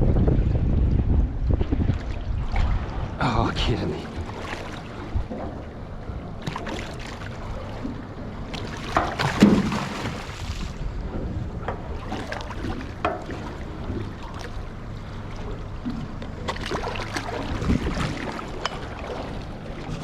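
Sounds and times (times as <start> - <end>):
wind on microphone: 0.0 - 6.4, 17.3 - 20.0
knocks aboard boat: 4.1 - 14.7.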